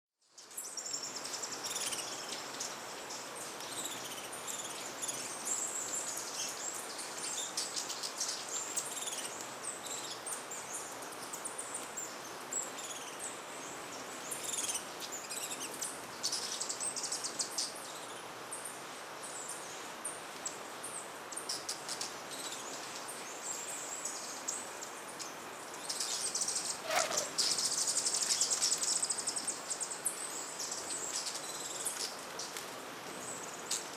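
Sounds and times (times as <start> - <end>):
hiss of forest insects: 0.4 - 33.9
hummingbirds chipping and twittering: 21.3 - 32.5.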